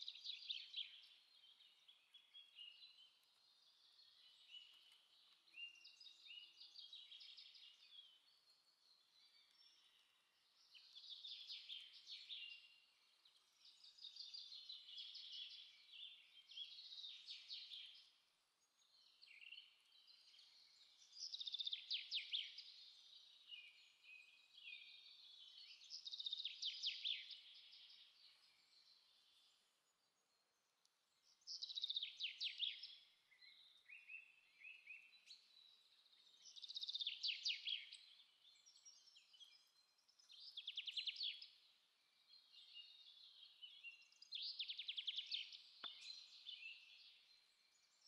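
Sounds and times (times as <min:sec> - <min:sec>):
birds chirping and trilling: 0:31.2 - 0:48.0.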